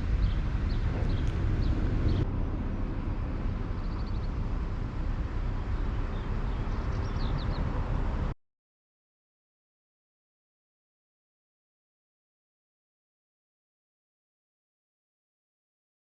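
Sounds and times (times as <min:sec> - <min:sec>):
small birds chirping: 0:00.0 - 0:02.3, 0:03.6 - 0:04.5, 0:05.5 - 0:07.8
low rumble: 0:00.0 - 0:08.4.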